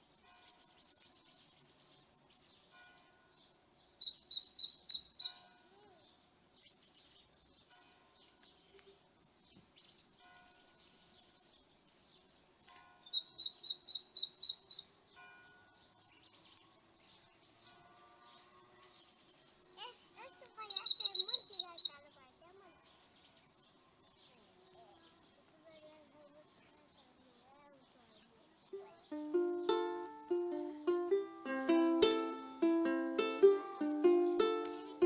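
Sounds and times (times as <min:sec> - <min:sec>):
birds chirping and singing: 0:04.0 - 0:35.0
quick repeated high bird notes: 0:20.6 - 0:22.0.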